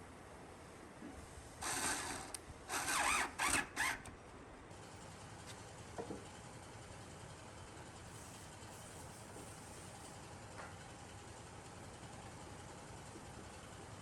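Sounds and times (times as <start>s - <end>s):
mechanical ratchet rasping: 1.6s - 4.1s.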